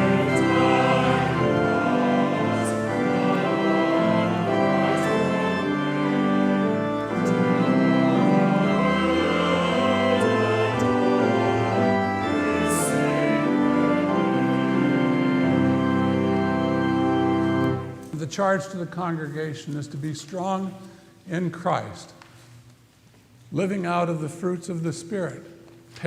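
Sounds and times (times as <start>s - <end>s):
church organ playing a hymn: 0.0s - 20.8s.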